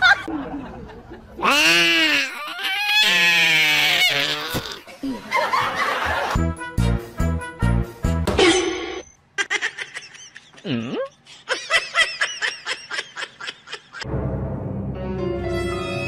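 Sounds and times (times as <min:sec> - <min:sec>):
person laughing: 0:09.4 - 0:14.0.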